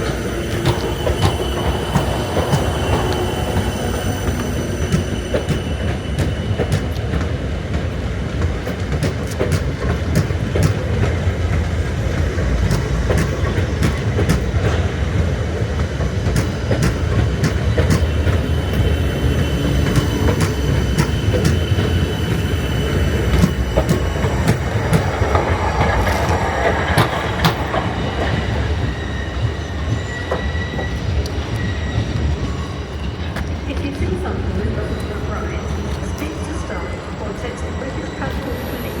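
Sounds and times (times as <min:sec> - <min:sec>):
wheels clicking over rail joints: 0:00.0 - 0:36.7
train rumbling along track: 0:00.0 - 0:39.0
faint wheel squeal: 0:18.0 - 0:33.6.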